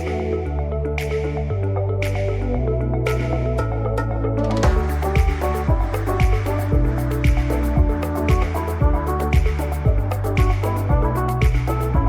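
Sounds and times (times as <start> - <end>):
electronic music with bass line: 0.0 - 12.0.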